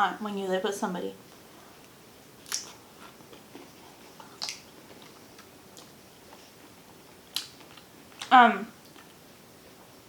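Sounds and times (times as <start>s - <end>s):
faint chewing: 1.3s - 9.2s.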